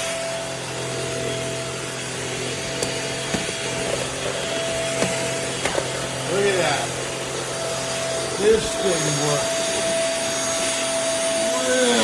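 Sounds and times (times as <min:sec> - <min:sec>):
stick vacuum running: 0:00.0 - 0:12.0.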